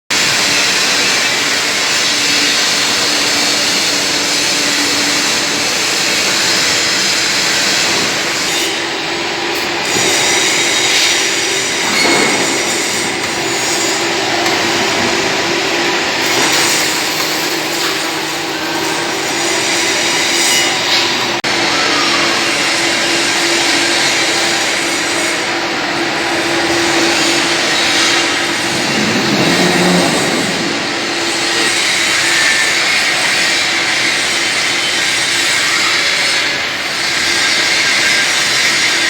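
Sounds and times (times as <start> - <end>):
welding arc hissing and crackling: 0.2 - 21.4
machine hum: 26.7 - 31.9.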